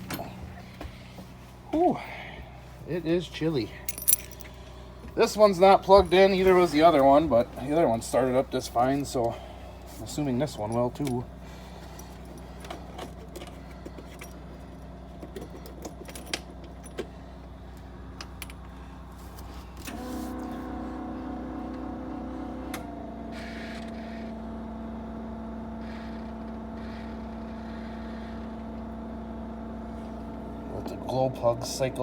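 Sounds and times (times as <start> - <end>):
keys jangling in ignition: 0.0 - 0.5, 3.7 - 4.6, 10.4 - 11.2, 15.3 - 17.1
low steady hum: 0.0 - 22.8.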